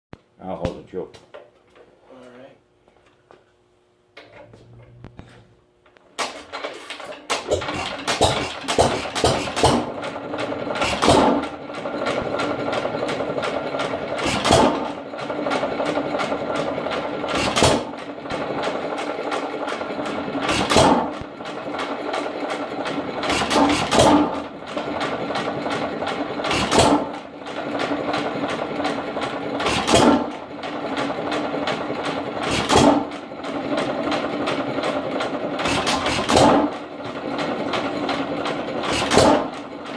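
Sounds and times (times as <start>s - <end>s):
hit-and-miss engine clattering: 6.2s - 39.9s.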